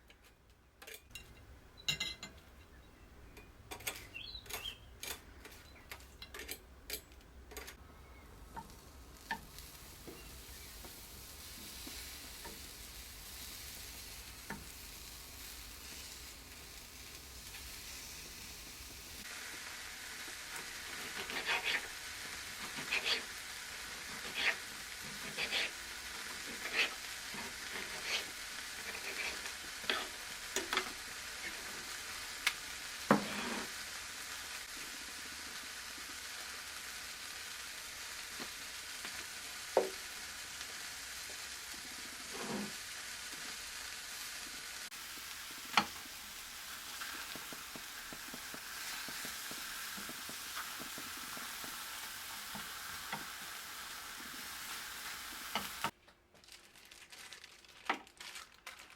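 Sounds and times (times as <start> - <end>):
oil sizzling in a pan: 8.3 - 56.0.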